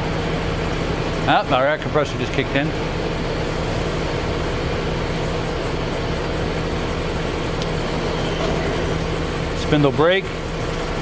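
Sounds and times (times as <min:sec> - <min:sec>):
air compressor running: 0:00.0 - 0:11.0
machine spindle hum: 0:02.5 - 0:11.0.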